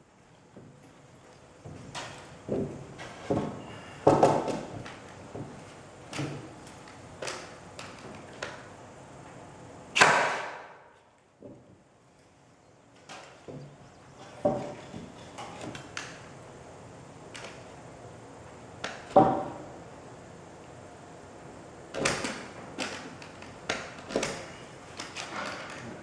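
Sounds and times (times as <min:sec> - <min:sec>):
boards and tools clattering: 0:01.6 - 0:08.6, 0:13.0 - 0:16.2
loud wooden hit: 0:10.0 - 0:10.8.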